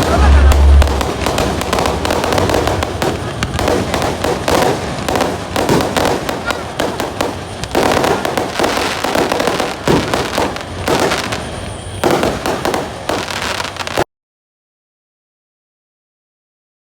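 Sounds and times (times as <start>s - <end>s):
fireworks bangs: 0.0s - 14.1s
fireworks crackling: 0.0s - 14.1s.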